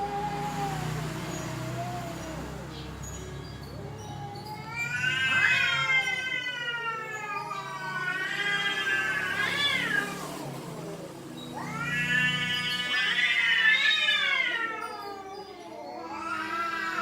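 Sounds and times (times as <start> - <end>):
cats yowling: 0.0 - 3.0, 3.7 - 17.0.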